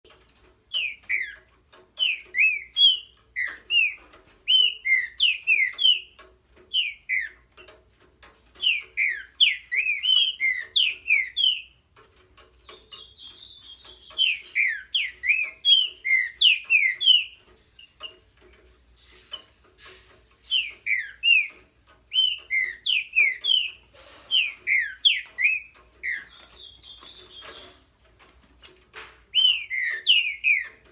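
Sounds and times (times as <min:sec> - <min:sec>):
bird singing whistled notes: 0:00.2 - 0:01.4, 0:02.0 - 0:06.1, 0:06.7 - 0:07.4, 0:08.6 - 0:11.8, 0:12.6 - 0:17.4, 0:20.0 - 0:27.6, 0:29.3 - 0:30.8.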